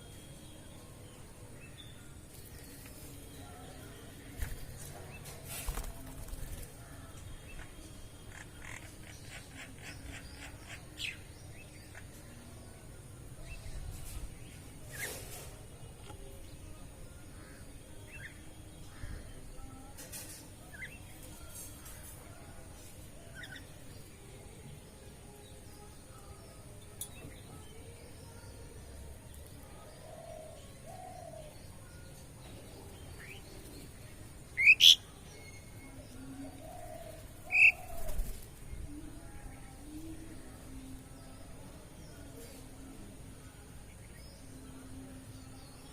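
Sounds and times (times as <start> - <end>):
birds chirping: 29.5 - 43.0
loud sharp high bird calls: 34.6 - 35.0.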